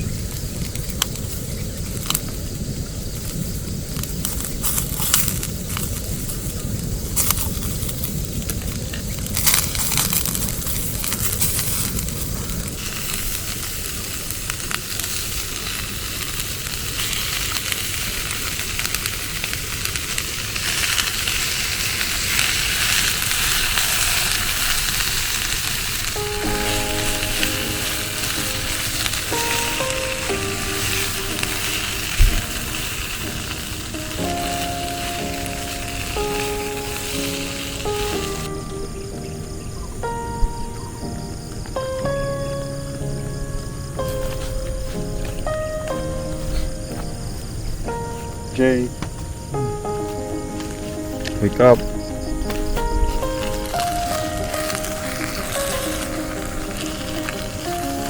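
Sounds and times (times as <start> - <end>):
food sizzling in a frying pan: 0.0 - 58.0
soft background music: 20.6 - 58.0.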